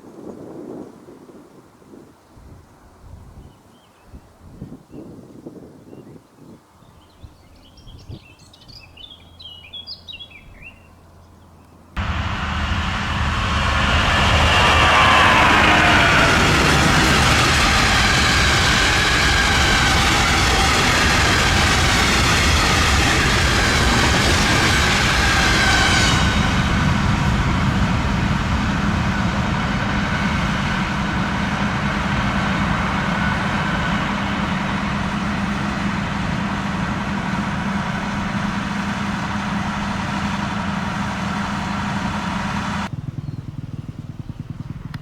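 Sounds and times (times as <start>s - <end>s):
train rumbling past: 8.9s - 44.8s
steady low hum: 12.0s - 45.0s.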